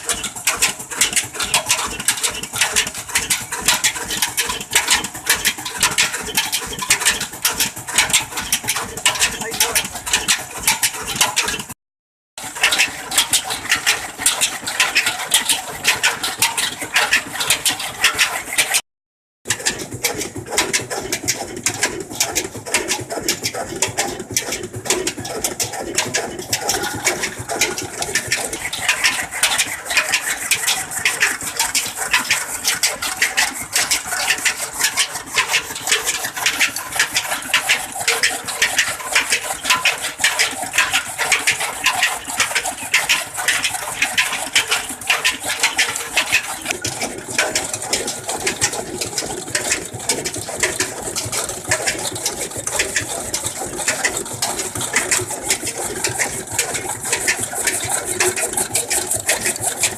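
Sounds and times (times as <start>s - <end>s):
stationary engine running: 0.8s - 11.2s.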